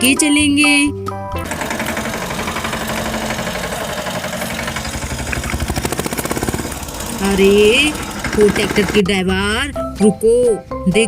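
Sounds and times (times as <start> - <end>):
tractor engine chugging: 1.4 - 9.6.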